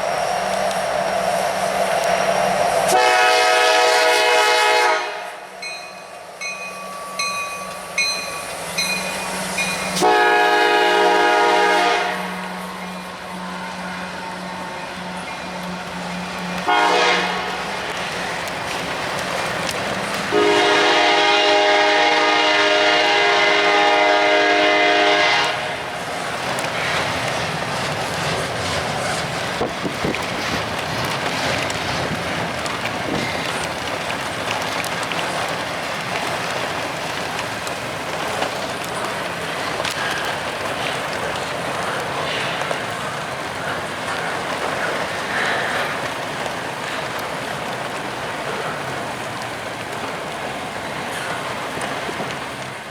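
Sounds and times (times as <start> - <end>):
rain: 0.0 - 52.9
train cars rumbling past: 0.0 - 52.9
locomotive air horn: 2.9 - 5.5, 9.9 - 17.9, 20.3 - 25.9
train wheel clatter: 5.6 - 52.9.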